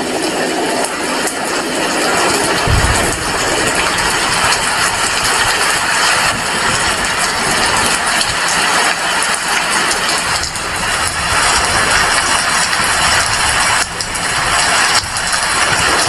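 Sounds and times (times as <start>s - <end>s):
heavy rain falling: 0.0s - 16.0s
low rumble: 2.4s - 8.4s.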